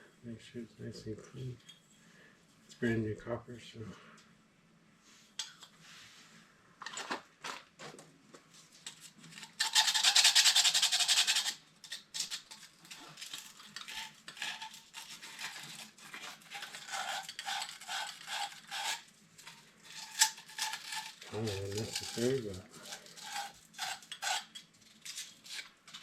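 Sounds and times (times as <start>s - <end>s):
scouring copper pipe: 8.9s - 26.0s.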